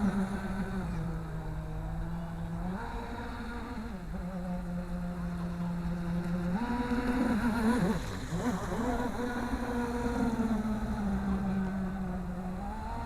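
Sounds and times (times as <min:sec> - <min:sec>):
model boat motor whining: 0:00.0 - 0:13.0.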